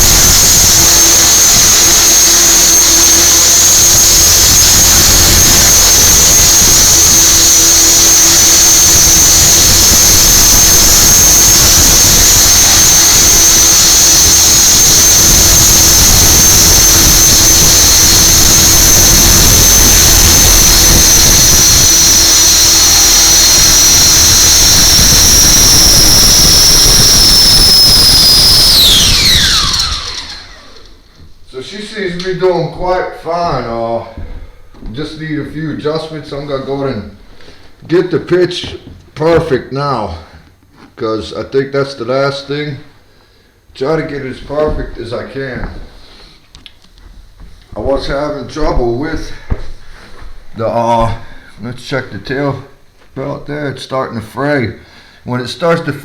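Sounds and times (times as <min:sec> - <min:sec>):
rc helicopter motor whine: 0:00.0 - 0:30.9.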